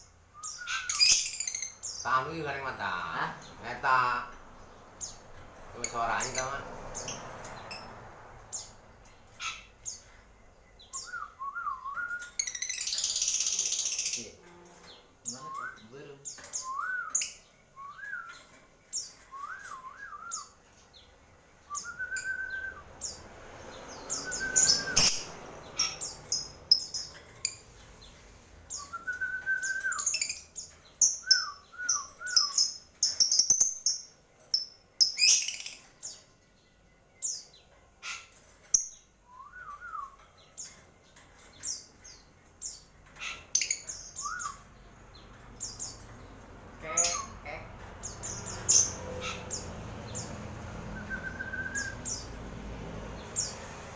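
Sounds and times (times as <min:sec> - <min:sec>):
small birds chirping: 0:00.0 - 0:53.9
slurred bird whistle: 0:00.4 - 0:01.4, 0:21.7 - 0:22.8, 0:24.0 - 0:25.3, 0:28.7 - 0:30.3, 0:31.2 - 0:32.7, 0:44.2 - 0:44.6, 0:50.9 - 0:52.2.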